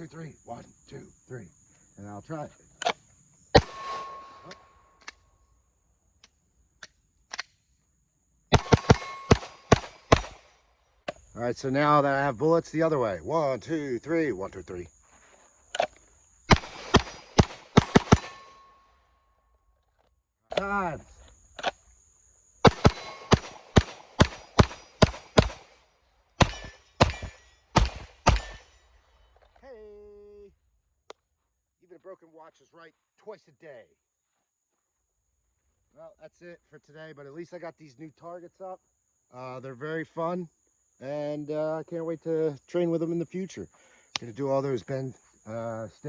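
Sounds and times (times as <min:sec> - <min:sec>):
pistol shots: 0:03.6 - 0:04.7, 0:08.5 - 0:10.5, 0:16.5 - 0:18.7, 0:22.6 - 0:25.8, 0:26.4 - 0:28.7
steel plate ringing: 0:03.6 - 0:05.0, 0:08.6 - 0:09.4, 0:17.8 - 0:18.9.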